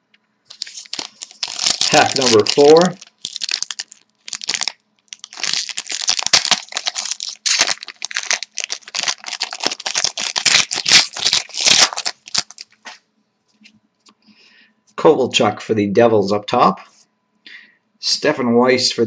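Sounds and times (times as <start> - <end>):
wrapper tearing and crinkling: 0.5 - 13.0.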